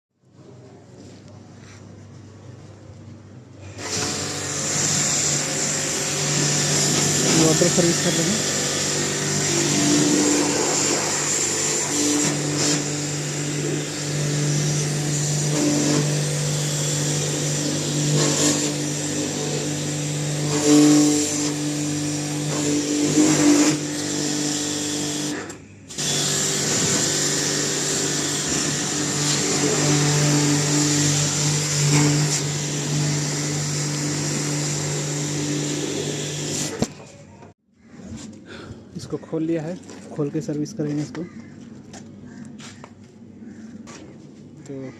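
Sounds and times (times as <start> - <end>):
electric motor humming: 3.6 - 36.9.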